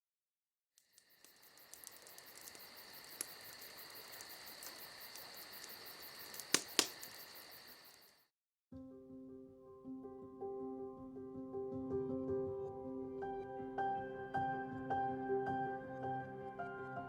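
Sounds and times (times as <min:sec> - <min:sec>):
insects chirping: 0:00.8 - 0:08.3
sharp clicks: 0:00.9 - 0:07.3.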